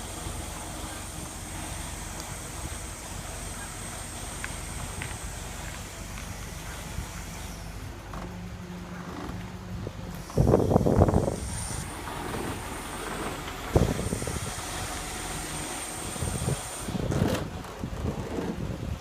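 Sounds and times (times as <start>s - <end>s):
loud rushing hiss: 0.0s - 8.0s, 10.1s - 17.2s.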